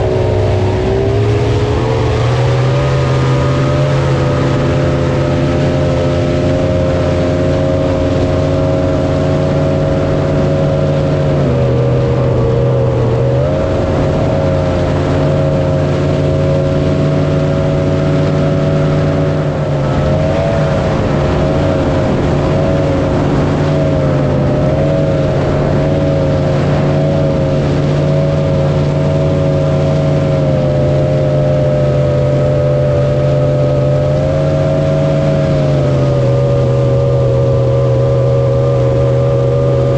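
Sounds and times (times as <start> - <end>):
jet boat engine running: 0.0 - 39.9.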